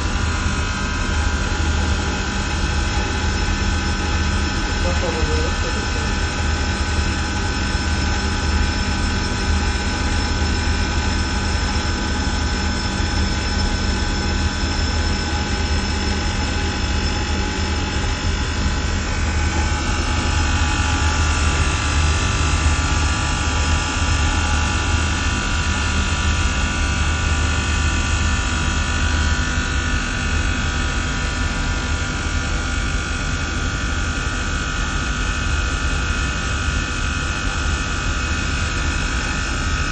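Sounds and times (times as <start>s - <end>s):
machinery low hum: 0.0s - 29.8s.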